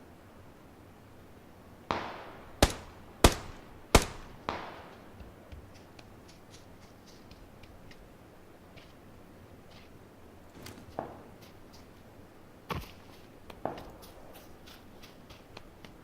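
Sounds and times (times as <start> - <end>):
sharp bangs with echo: 1.9 - 5.2.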